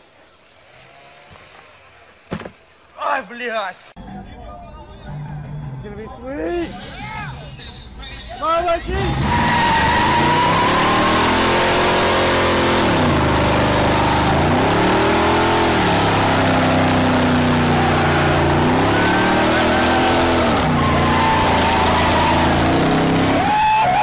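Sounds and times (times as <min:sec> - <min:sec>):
car engine revving: 0:08.8 - 0:23.8
spinning tyres hissing: 0:08.9 - 0:24.0.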